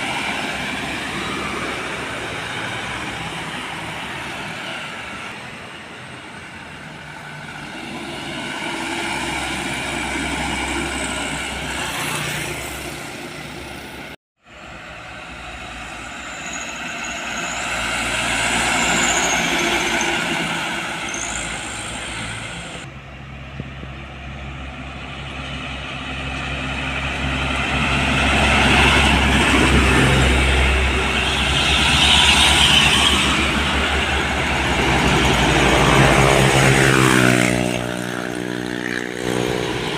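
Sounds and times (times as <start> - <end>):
diesel trucks driving past: 0.0 - 39.9.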